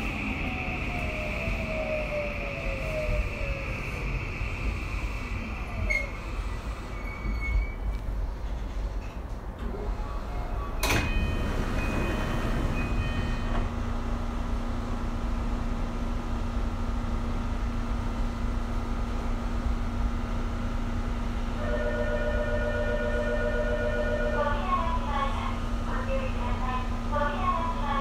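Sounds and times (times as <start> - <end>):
electrical hum of train: 0.0 - 28.0
train doors clunk and hiss: 5.8 - 13.7.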